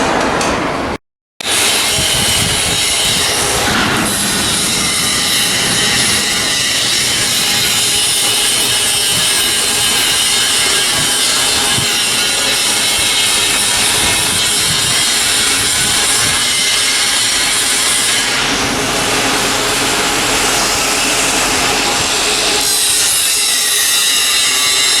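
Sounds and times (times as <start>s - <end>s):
power tool running: 1.4s - 25.0s.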